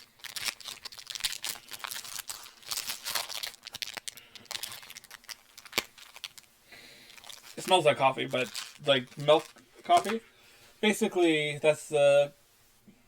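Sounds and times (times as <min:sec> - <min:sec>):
wrapper crinkling: 0:00.0 - 0:10.2.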